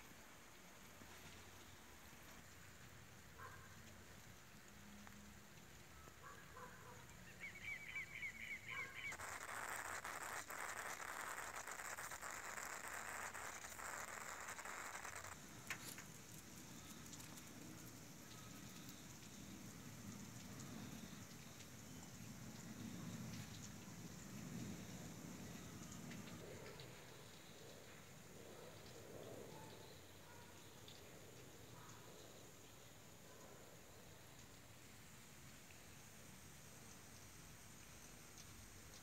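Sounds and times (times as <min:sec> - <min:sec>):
steady hiss: 0:07.0 - 0:39.0.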